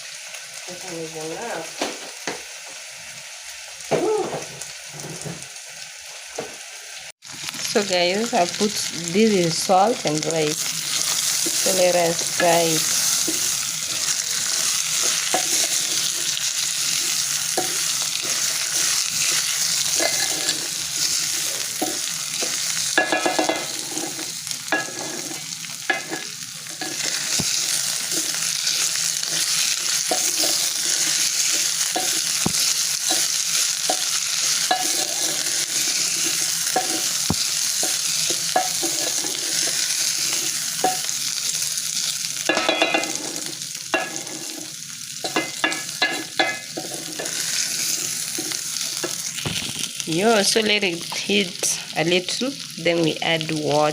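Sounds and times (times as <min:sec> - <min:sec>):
rice sizzling in hot oil: 0:00.0 - 0:53.9
spoon stirring and scraping pot: 0:10.9 - 0:41.1, 0:42.5 - 0:49.2.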